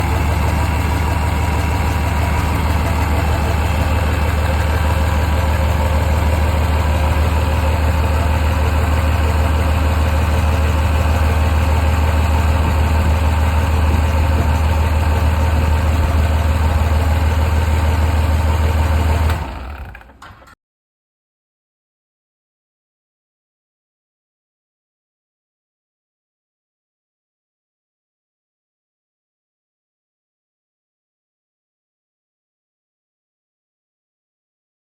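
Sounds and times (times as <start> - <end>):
diesel engine idling: 0.0 - 20.2.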